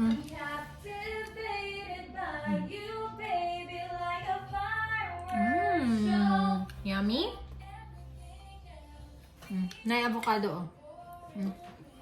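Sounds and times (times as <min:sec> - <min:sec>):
high voice singing: 0:02.2 - 0:03.1, 0:05.1 - 0:06.8.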